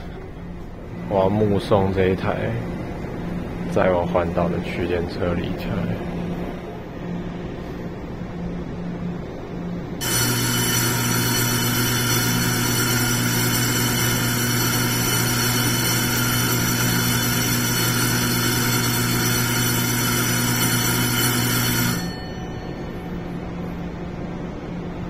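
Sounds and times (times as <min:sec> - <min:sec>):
platform departure bell ringing: 0:10.0 - 0:25.0.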